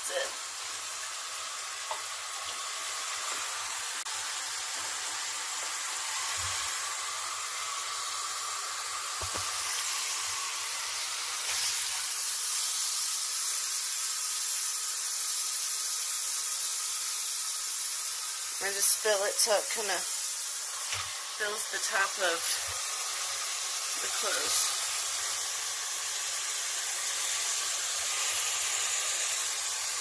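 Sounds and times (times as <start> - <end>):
shower head spraying water: 0.0 - 30.0.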